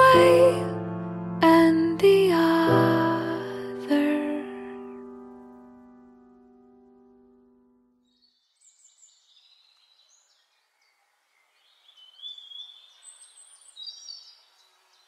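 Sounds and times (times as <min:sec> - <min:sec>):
small birds chirping: 0:08.0 - 0:15.0.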